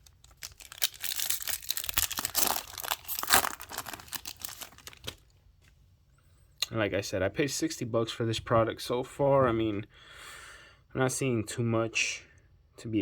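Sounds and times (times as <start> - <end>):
card pack wrapper crinkling: 0.0 - 5.2.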